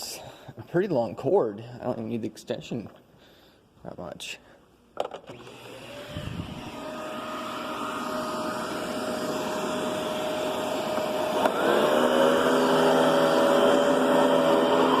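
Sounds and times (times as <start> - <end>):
vacuum cleaner motor running: 5.3 - 15.0.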